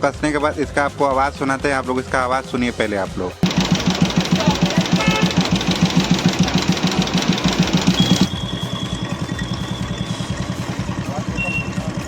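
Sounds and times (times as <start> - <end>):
motorcycle engine idling: 3.4 - 12.0.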